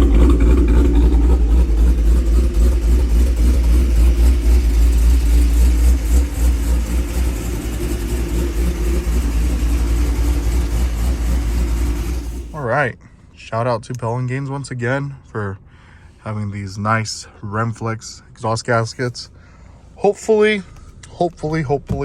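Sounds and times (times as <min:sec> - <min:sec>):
car engine loping rumble: 0:00.0 - 0:12.7.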